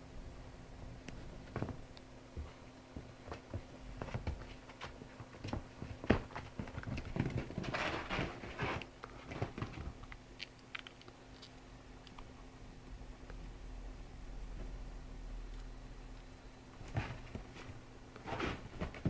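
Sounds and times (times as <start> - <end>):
kittens paws pattering and scuffling: 0.8 - 12.4, 16.2 - 19.0
rustling scuffle: 1.2 - 10.0, 16.8 - 19.0.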